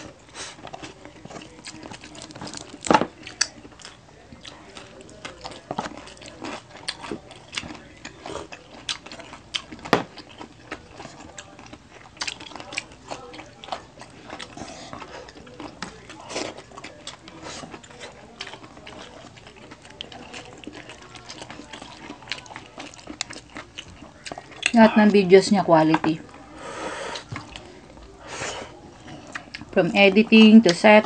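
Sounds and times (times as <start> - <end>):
chewing crunchy food: 0.0 - 25.3, 26.0 - 31.0
food picked apart by hand: 0.5 - 24.8.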